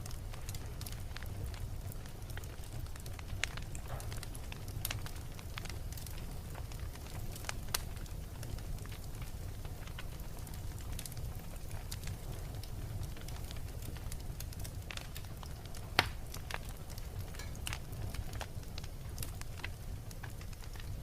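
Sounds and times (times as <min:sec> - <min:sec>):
fire crackling and popping: 0:00.0 - 0:21.0
low rumble of flames: 0:00.0 - 0:21.0.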